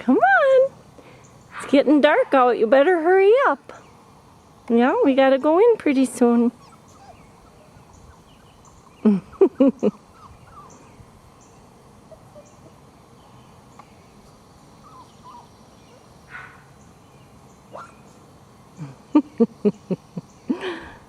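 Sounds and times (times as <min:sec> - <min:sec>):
puppies yipping: 0:06.6 - 0:11.0, 0:12.0 - 0:12.8, 0:14.8 - 0:16.6, 0:17.7 - 0:18.1
faint bird chirps: 0:06.6 - 0:14.2, 0:14.8 - 0:18.3.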